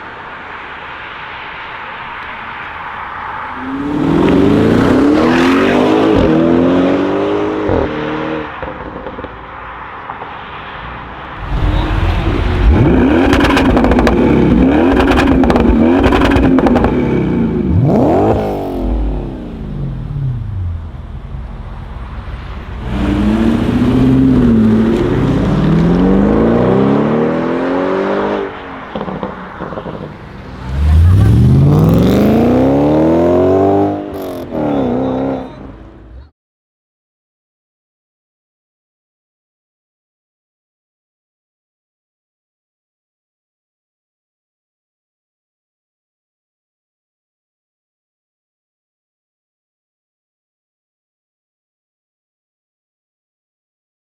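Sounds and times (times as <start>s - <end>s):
car engine revving and accelerating: 3.7s - 8.9s, 11.4s - 35.7s
exhaust cracks: 11.4s - 17.0s.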